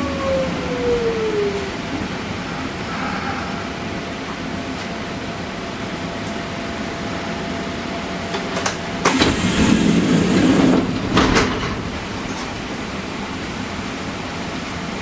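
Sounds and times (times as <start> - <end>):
train air conditioning hum: 0.0 - 15.0
loud rushing noise: 9.1 - 13.3.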